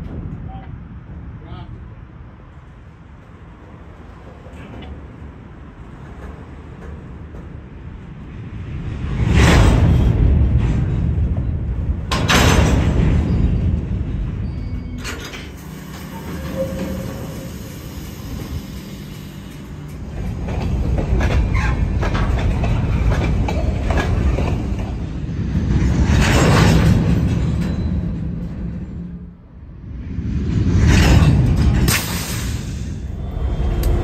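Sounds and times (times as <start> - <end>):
freight train rolling past: 0.0 - 34.0
wheels clicking over rail joints: 3.1 - 8.2, 10.2 - 29.2.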